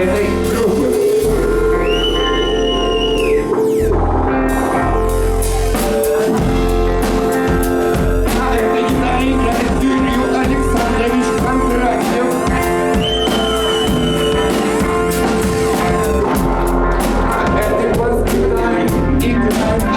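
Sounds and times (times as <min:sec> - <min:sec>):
held high note: 0:00.0 - 0:16.8
rock band playing live: 0:00.0 - 0:19.9
drum hits: 0:05.4 - 0:19.9.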